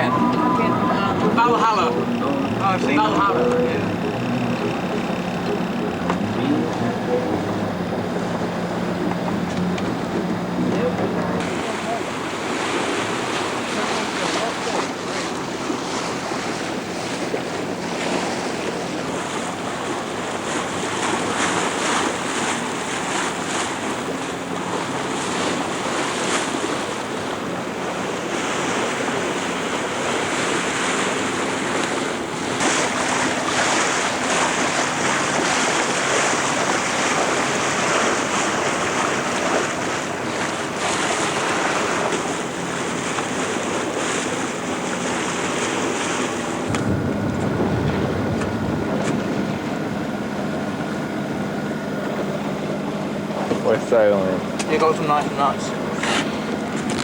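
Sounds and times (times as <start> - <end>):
water splashing along hull: 0.0 - 57.0
wind buffeting microphone: 31.6 - 53.5.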